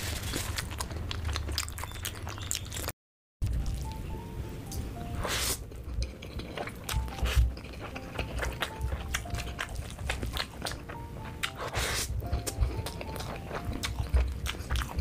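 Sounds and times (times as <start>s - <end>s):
wet chewing sounds: 0.0s - 2.9s, 5.3s - 15.0s
soft background tune: 3.4s - 15.0s.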